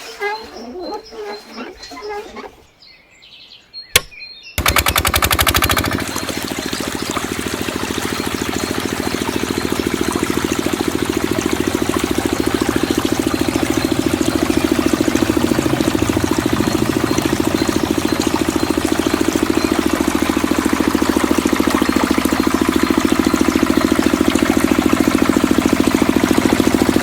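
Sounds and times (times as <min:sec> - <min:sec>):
sharp click: 0:04.0 - 0:05.2
small diesel engine knocking: 0:04.6 - 0:27.0.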